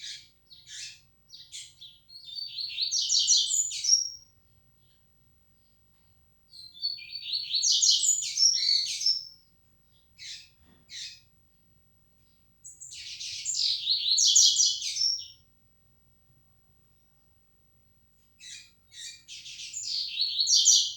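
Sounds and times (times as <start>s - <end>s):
bird singing chattering phrases: 0.0s - 4.2s, 6.6s - 9.3s, 18.4s - 20.9s.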